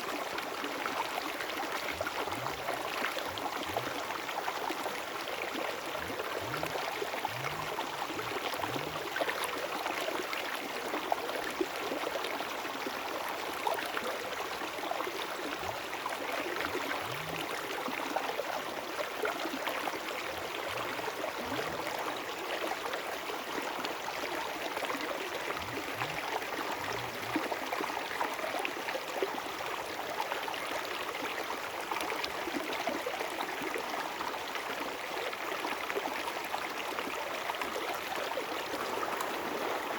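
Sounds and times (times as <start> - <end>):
river water rushing: 38.2 - 39.9.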